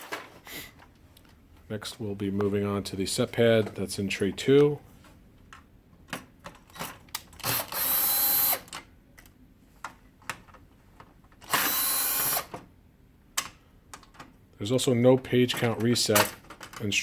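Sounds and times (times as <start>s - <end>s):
power screwdriver running: 7.4s - 8.7s, 11.5s - 12.5s.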